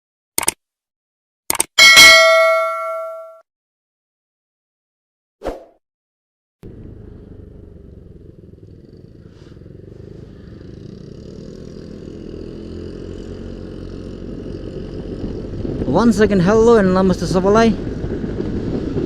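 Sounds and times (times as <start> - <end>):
scooter engine rumble: 6.6 - 15.9.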